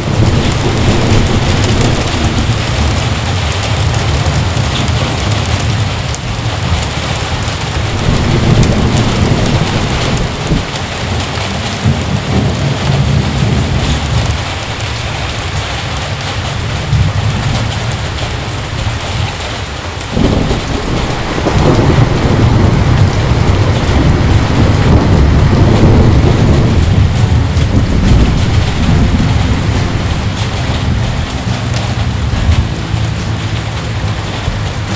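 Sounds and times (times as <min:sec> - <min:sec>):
loud crash of thunder: 0:00.0 - 0:04.7, 0:07.7 - 0:19.4, 0:20.1 - 0:31.6
heavy rain: 0:00.0 - 0:34.9
rolling thunder: 0:00.0 - 0:34.9.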